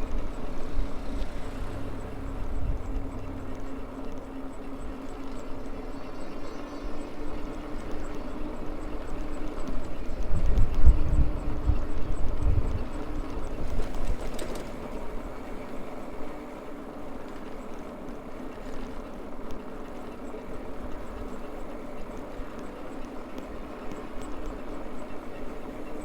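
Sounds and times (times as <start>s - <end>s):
wind buffeting microphone: 0.0s - 6.0s, 6.9s - 16.4s
electric motor whine: 0.0s - 13.8s.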